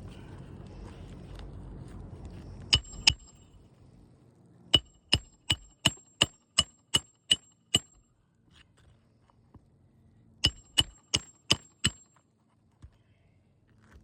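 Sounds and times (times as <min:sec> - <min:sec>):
hammer driving nails with metallic ring: 0:02.7 - 0:03.4, 0:04.8 - 0:08.0, 0:10.4 - 0:12.2.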